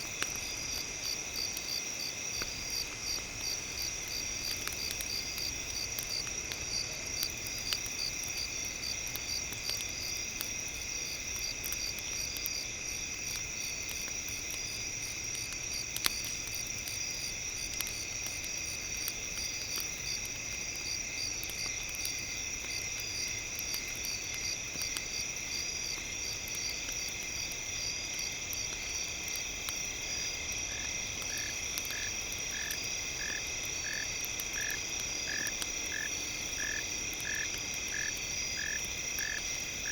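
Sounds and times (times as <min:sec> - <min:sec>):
campfire crackles: 0:00.0 - 0:39.9
insects trilling: 0:00.0 - 0:39.9.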